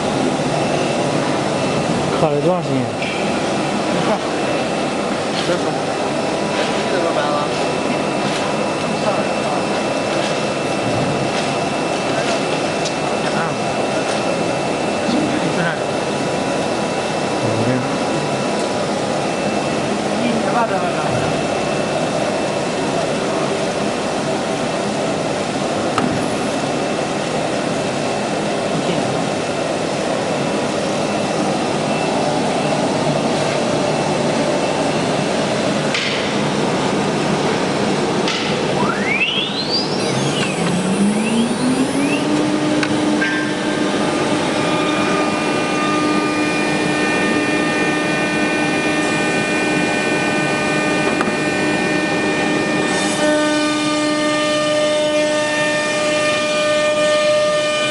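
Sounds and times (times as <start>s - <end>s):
spindle whine: 0.0s - 57.9s
router rushing machine noise: 31.4s - 57.9s.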